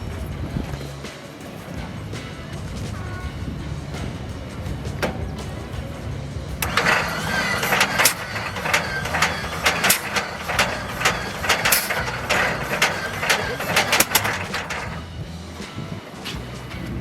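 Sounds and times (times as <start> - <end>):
tank engine low drone: 3.6 - 17.0.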